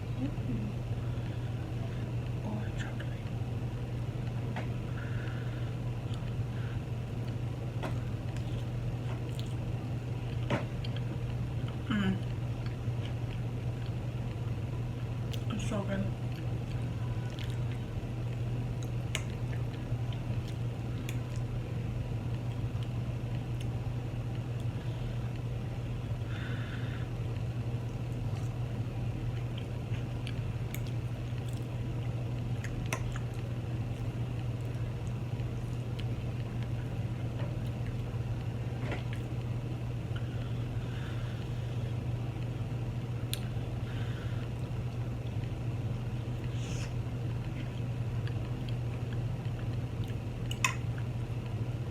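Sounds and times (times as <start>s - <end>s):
steady low hum: 0.0s - 51.9s
chewing and eating: 6.0s - 6.4s, 7.2s - 14.5s, 16.2s - 26.2s, 27.2s - 42.5s, 43.2s - 51.6s.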